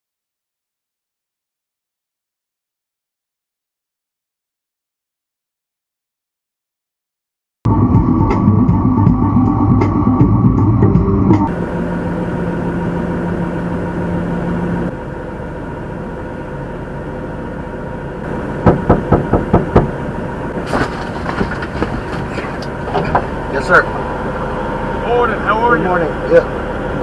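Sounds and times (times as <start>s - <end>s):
truck engine running: 7.7s - 27.0s
sharp knocks on truck cab: 18.6s - 19.9s
light clicks and bumps: 20.6s - 23.3s.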